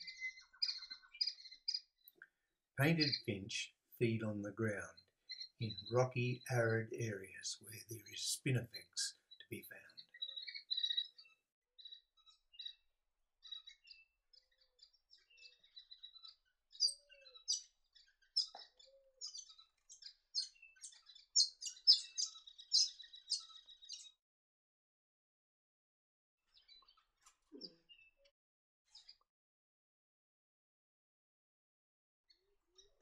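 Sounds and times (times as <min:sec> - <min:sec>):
finches chirping: 0:00.0 - 0:24.2.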